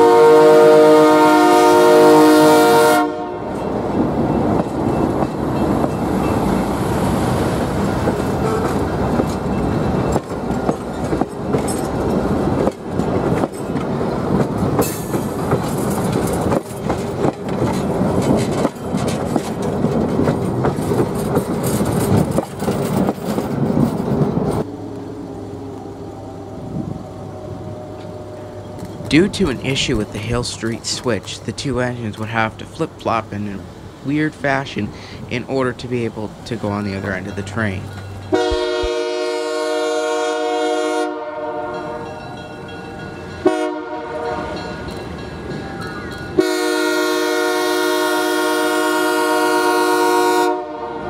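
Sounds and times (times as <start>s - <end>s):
heavy train rumble: 0.0s - 51.0s
train wheels clattering over joints: 3.5s - 24.7s.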